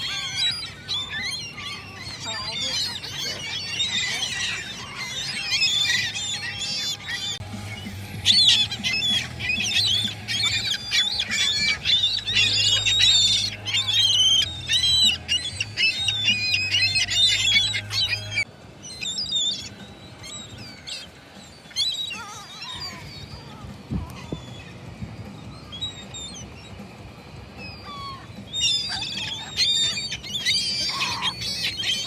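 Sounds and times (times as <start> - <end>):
gulls squawking: 0.0 - 32.0.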